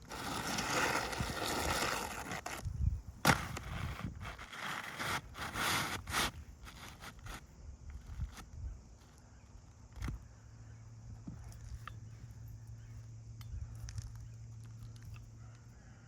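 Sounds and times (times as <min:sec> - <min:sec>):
scraping of gritty shingles: 0:00.0 - 0:08.5.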